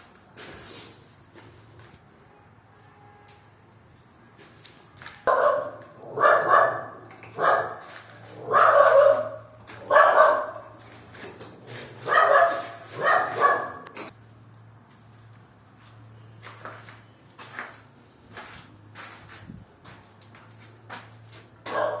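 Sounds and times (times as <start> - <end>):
dog barking: 5.3 - 10.7, 12.0 - 14.0, 21.7 - 22.0.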